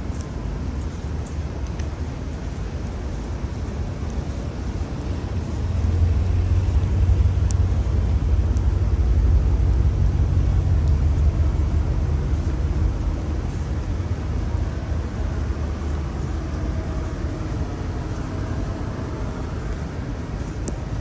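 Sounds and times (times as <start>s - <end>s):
steady hiss: 0.0s - 21.0s
vehicle engine rumble passing: 0.0s - 21.0s.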